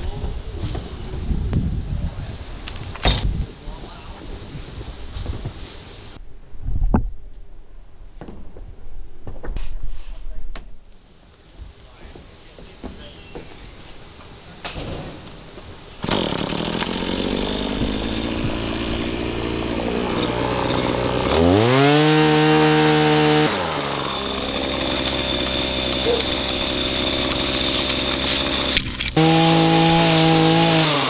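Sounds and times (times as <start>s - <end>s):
chainsaw idling and revving: 16.0s - 31.0s.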